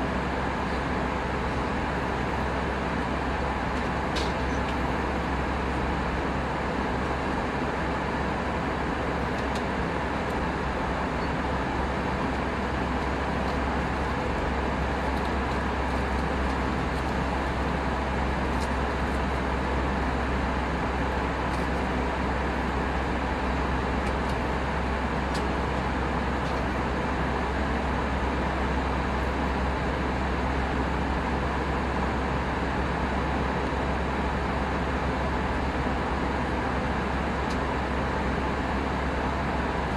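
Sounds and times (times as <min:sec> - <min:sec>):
airplane cabin noise: 0:00.0 - 0:39.9.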